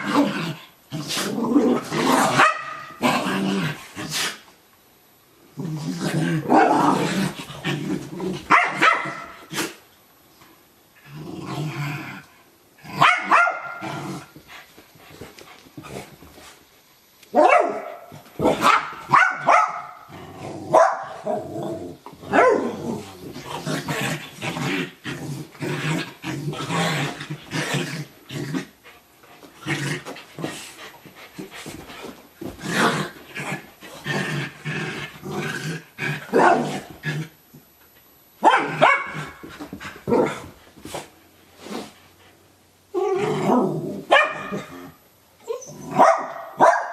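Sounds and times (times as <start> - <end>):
dogs play-growling: 0.0 - 4.6, 5.5 - 9.8, 11.0 - 13.1, 13.8 - 16.6, 18.1 - 19.1, 20.0 - 37.7, 39.1 - 46.0
dogs barking: 8.5 - 9.3, 13.0 - 13.8, 18.6 - 20.0, 44.1 - 44.5, 46.0 - 46.9.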